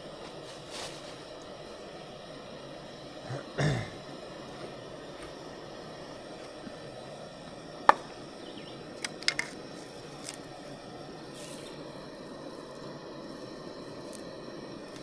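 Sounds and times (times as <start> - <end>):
steady background hiss: 0.0 - 15.0
sharp clicks: 9.0 - 9.6.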